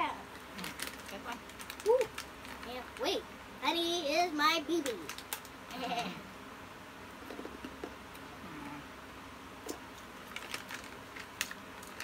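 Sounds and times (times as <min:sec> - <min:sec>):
almonds crunching while chewed: 0:00.4 - 0:02.8, 0:10.2 - 0:12.0
short hummed vocal sound: 0:05.7 - 0:06.4, 0:08.2 - 0:09.2.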